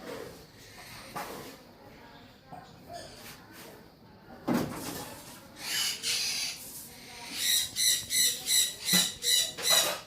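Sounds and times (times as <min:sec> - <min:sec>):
parrot calling: 0:07.2 - 0:10.0.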